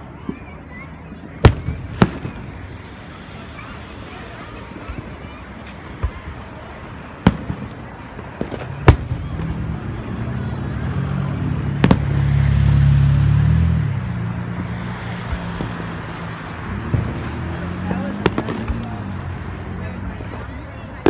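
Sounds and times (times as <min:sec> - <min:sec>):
fireworks bursting: 0:00.2 - 0:13.3, 0:14.6 - 0:19.5
low droning rumble: 0:01.3 - 0:10.1.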